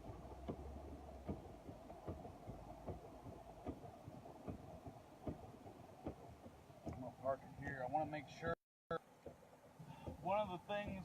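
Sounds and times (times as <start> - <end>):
wind and rain rumbling: 0.0 - 7.8.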